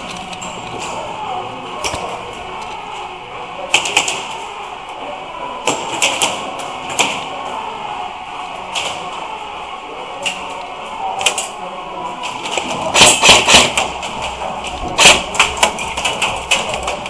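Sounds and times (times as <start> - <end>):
background murmur: 0.0 - 17.0.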